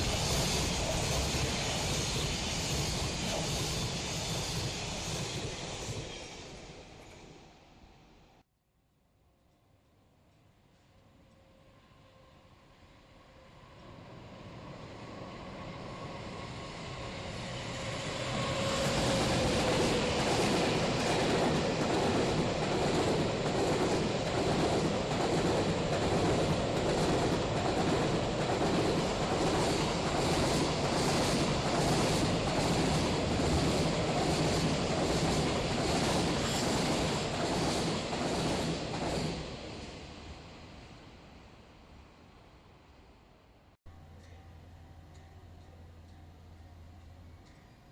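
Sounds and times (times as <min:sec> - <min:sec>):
freight train rumble: 0:00.0 - 0:07.6, 0:13.3 - 0:41.4.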